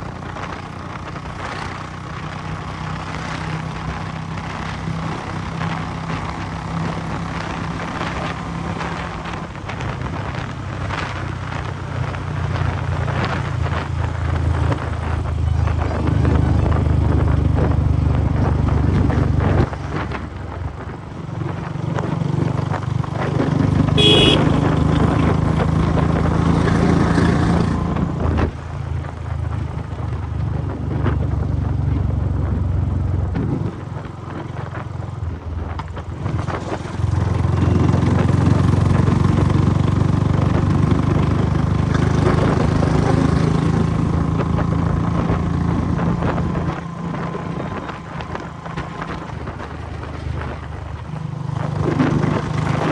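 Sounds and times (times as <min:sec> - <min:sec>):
motorcycle engine running hard: 0:00.0 - 0:52.9
short high-pitched beep: 0:24.0 - 0:24.8.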